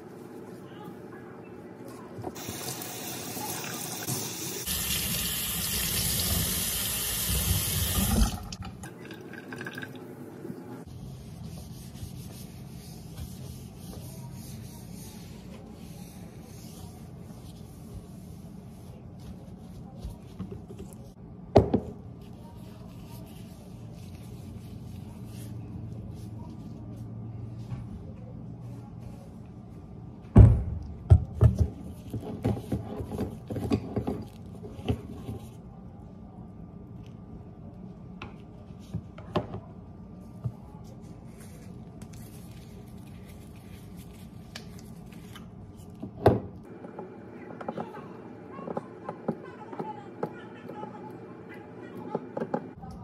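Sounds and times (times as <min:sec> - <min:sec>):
cleaning cloth rustling: 0:10.8 - 0:21.1
plastic gloves rubbing on bottle: 0:10.8 - 0:21.2, 0:22.2 - 0:27.2, 0:40.7 - 0:46.0.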